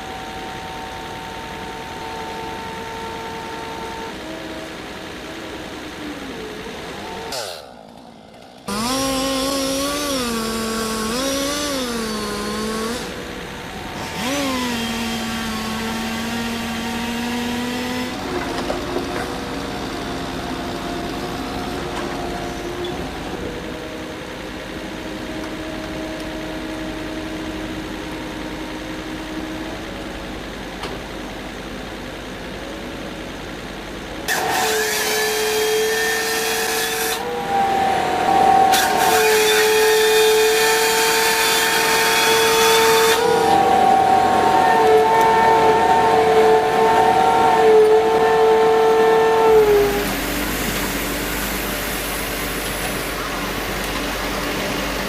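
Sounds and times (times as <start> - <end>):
chainsaws cutting wood: 6.9 - 20.1, 34.3 - 53.1.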